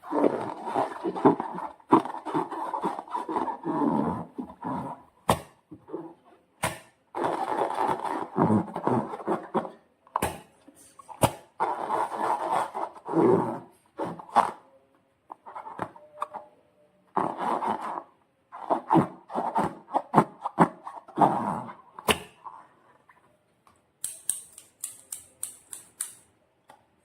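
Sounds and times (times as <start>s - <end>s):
slime squelching: 0.0s - 14.7s.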